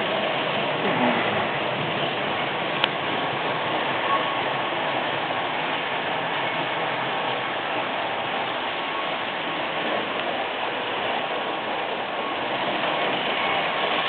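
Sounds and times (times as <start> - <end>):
model train running on track: 0.0 - 14.0.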